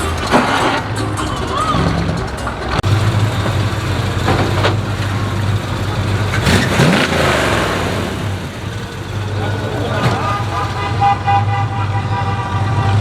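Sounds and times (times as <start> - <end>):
car engine revving: 0.0 - 13.0
car engines rumbling: 0.0 - 13.0.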